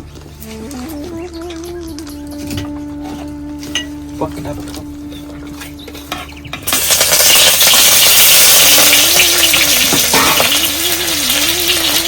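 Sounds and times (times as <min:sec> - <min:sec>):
food sizzling in hot oil: 0:06.6 - 0:12.0.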